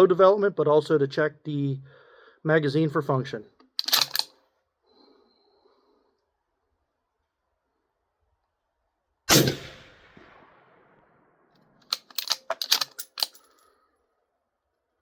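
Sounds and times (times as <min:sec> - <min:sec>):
rifle bolt clicking: 0:03.8 - 0:04.3, 0:11.9 - 0:13.5
rifle shot: 0:09.3 - 0:11.2.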